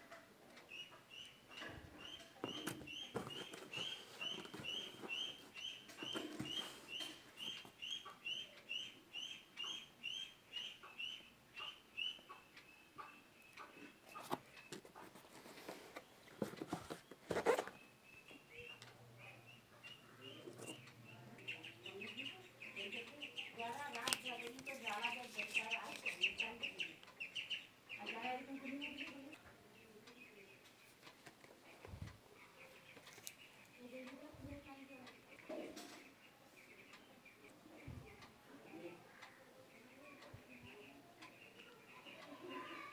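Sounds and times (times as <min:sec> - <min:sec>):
bird chirping: 0:00.0 - 0:42.9
packaging rustling: 0:02.5 - 0:07.2, 0:14.8 - 0:17.8.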